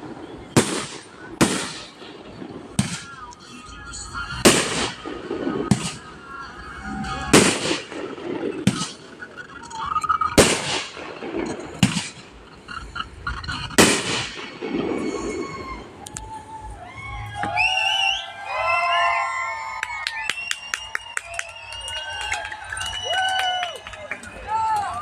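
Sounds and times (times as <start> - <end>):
fireworks bangs echoing: 0.0 - 3.7, 4.3 - 16.0.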